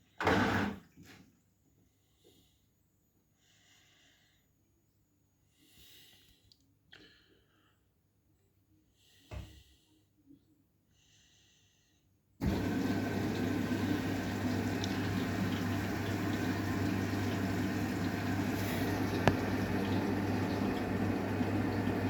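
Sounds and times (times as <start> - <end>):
washing machine filling with water: 12.4 - 22.0.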